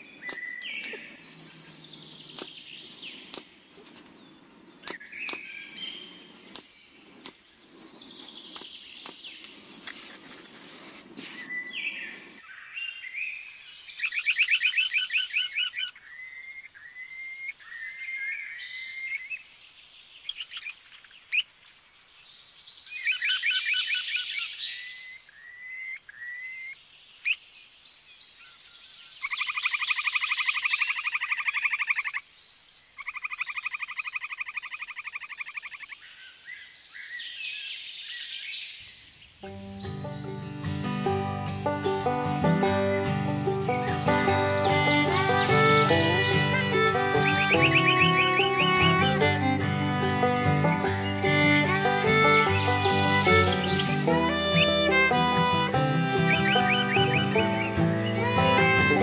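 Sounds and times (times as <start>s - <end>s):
rustle: 0.0s - 41.0s
songbirds calling: 0.0s - 59.0s
pulsed bird trills: 39.4s - 59.0s.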